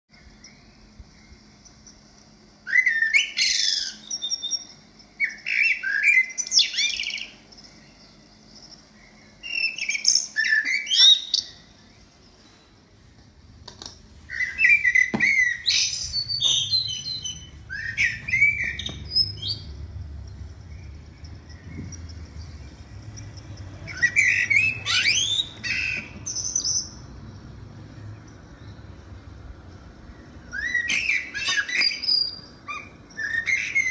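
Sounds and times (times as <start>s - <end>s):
bird calling loudly: 14.3s - 19.9s, 23.7s - 27.0s, 30.5s - 33.9s.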